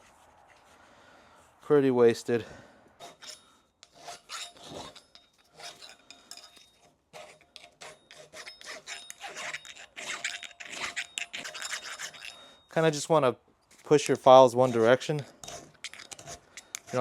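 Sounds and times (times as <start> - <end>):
hand file rasping on steel: 3.0 - 12.7, 13.9 - 17.0.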